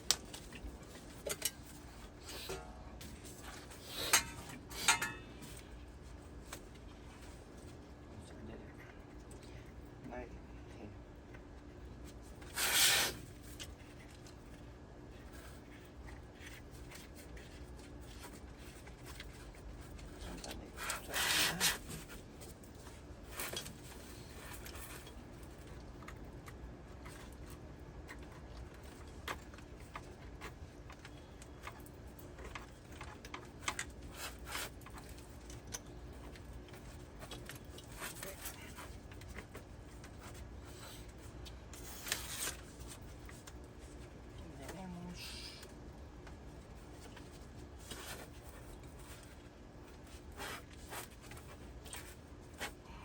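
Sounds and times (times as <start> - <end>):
tools rubbing and scraping: 0.8 - 5.6, 12.4 - 14.0, 16.5 - 25.2.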